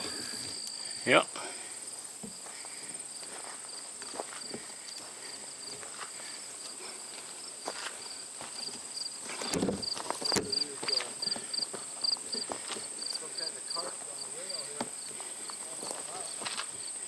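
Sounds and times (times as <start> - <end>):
pulsing insect chirp: 0.0 - 9.2
insects trilling: 0.0 - 17.0
footsteps on ground: 1.9 - 16.8
rustling on ground: 1.9 - 17.0.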